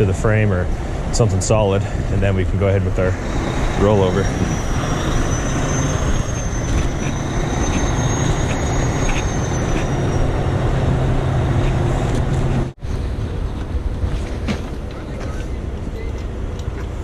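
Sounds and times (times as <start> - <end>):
diesel engine running: 0.0 - 17.0
thin high whine: 2.9 - 12.8.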